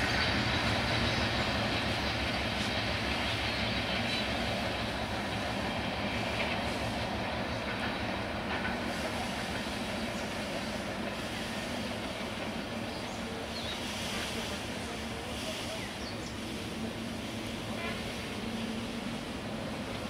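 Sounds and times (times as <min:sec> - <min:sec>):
train coaches rumbling on track: 0:00.0 - 0:20.0.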